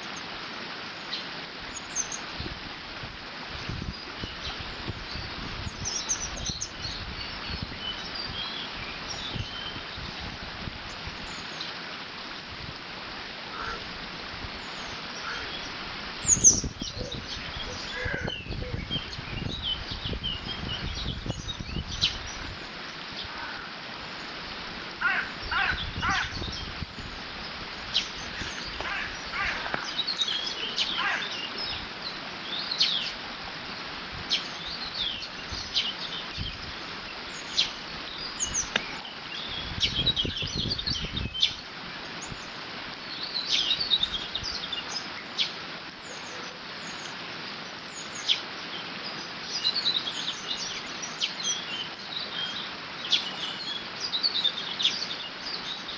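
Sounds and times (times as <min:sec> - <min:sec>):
small birds chirping: 0:00.9 - 0:02.6, 0:03.6 - 0:10.2, 0:14.5 - 0:55.9
wind gusts rumbling: 0:12.3 - 0:32.1.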